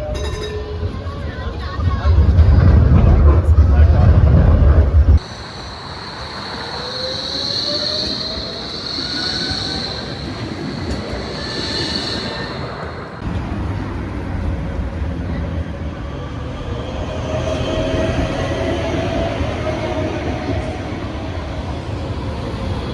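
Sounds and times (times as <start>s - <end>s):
tram rolling rumble: 0.0s - 22.9s
faint whine: 2.4s - 13.3s
tram wheels squealing on rails: 5.2s - 22.9s.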